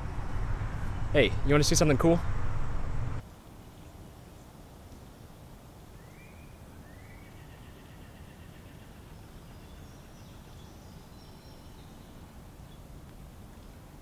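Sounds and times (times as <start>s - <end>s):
low background rumble: 0.0s - 3.2s.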